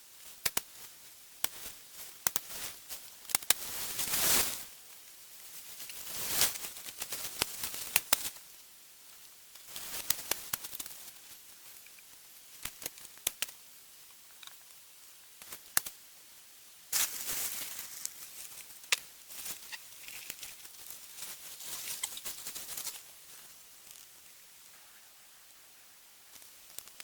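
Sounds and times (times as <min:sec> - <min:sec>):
twigs and leaves crackling: 0:00.4 - 0:08.5, 0:09.1 - 0:13.6, 0:16.9 - 0:25.4, 0:26.3 - 0:27.0
twigs snapping: 0:02.2 - 0:02.5, 0:09.6 - 0:11.2, 0:12.6 - 0:13.6, 0:17.0 - 0:23.0, 0:26.3 - 0:27.0.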